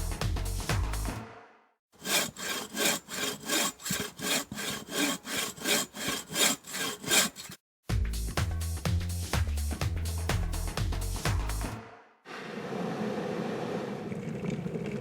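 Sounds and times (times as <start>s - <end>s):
rhythmic scraping strokes: 2.0s - 7.6s.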